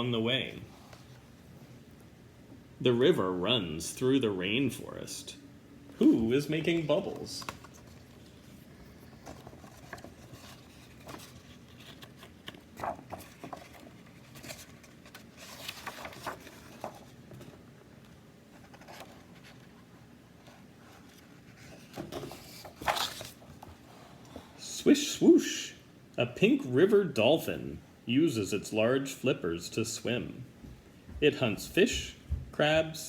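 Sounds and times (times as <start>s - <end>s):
paper rustling: 6.6s - 17.7s, 18.5s - 23.9s.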